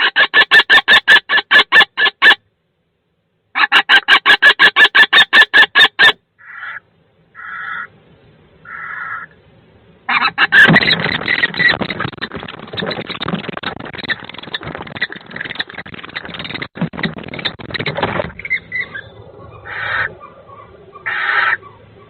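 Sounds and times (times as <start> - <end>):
short bird calls: 5.8 - 8.0, 8.6 - 9.5
birds scuffling and flapping wings: 10.4 - 18.9.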